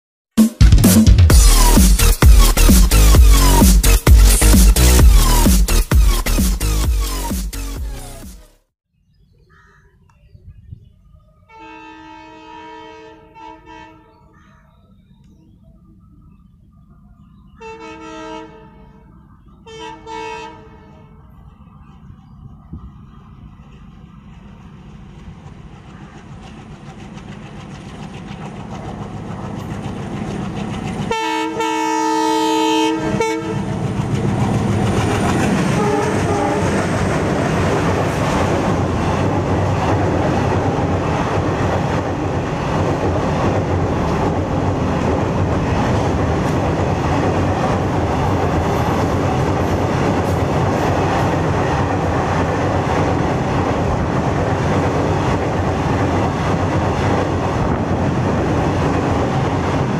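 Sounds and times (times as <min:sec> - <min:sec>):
diesel locomotive rumble: 0:01.3 - 0:07.3, 0:14.9 - 0:59.9
wheels on rail: 0:11.0 - 0:59.9
multi-tone train horn: 0:11.4 - 0:14.3, 0:17.5 - 0:21.3, 0:31.1 - 0:33.9, 0:35.4 - 0:36.9.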